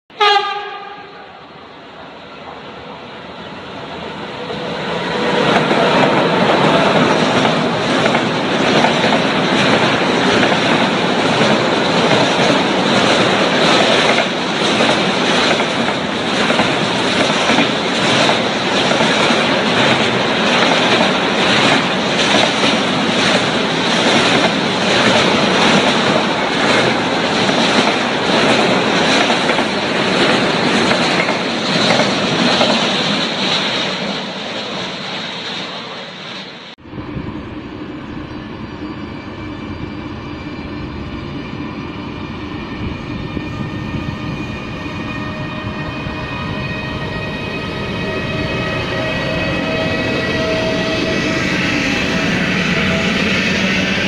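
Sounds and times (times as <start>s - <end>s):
freight train wheels rumbling: 0.1s - 54.0s
clickety-clack over rail joints: 4.8s - 35.1s.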